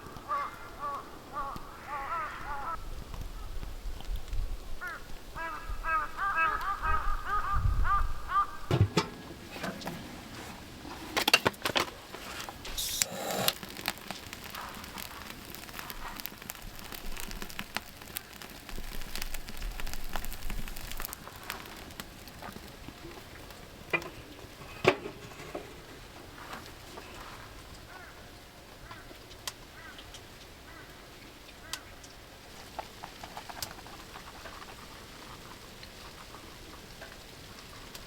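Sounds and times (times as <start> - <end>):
firewood crackling: 8.7 - 38.0.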